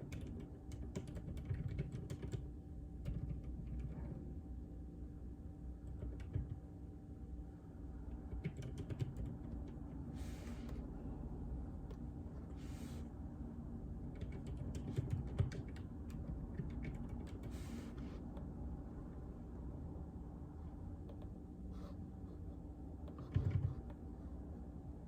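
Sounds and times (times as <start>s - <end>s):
soft keyboard key presses: 5.9s - 6.6s, 8.1s - 9.9s, 14.1s - 17.6s, 23.0s - 24.0s.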